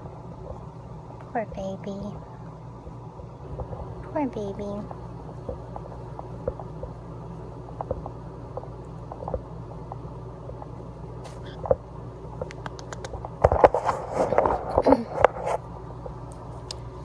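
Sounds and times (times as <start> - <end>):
steady low hum: 0.0 - 17.0
bird scratching on bedding: 13.5 - 15.6.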